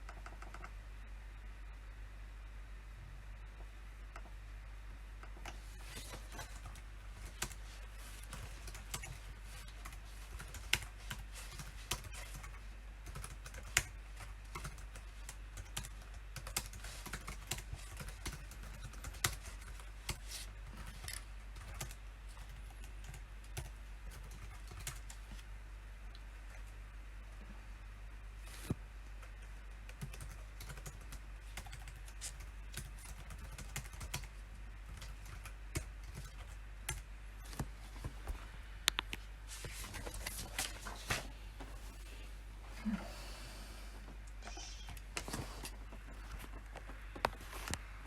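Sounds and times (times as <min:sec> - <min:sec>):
typing on computer keyboard: 0:00.0 - 0:00.8, 0:08.3 - 0:25.2, 0:29.9 - 0:37.1
steady low hum: 0:00.0 - 0:48.0.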